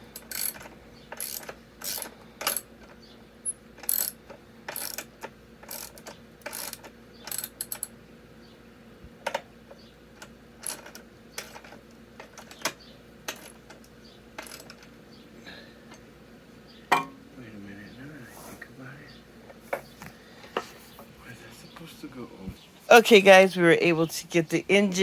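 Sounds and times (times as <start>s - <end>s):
ratchet wrench clicking: 0.1s - 2.7s, 3.4s - 7.9s, 14.4s - 14.8s.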